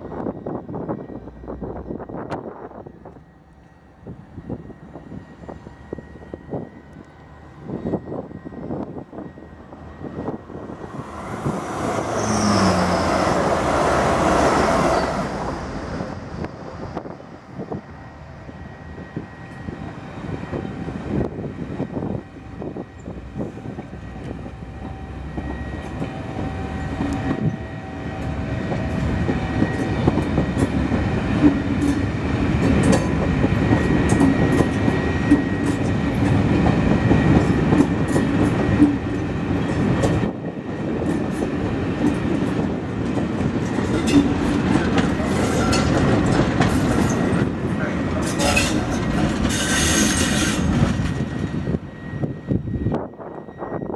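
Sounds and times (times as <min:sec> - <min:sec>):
diesel locomotive drone: 0:00.0 - 0:53.9
train wheels clicking over rail joints: 0:28.2 - 0:51.6.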